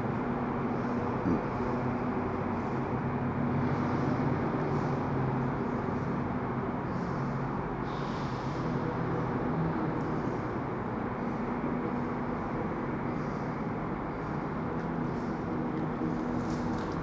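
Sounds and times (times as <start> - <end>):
train rumble and hum: 0.0 - 17.0.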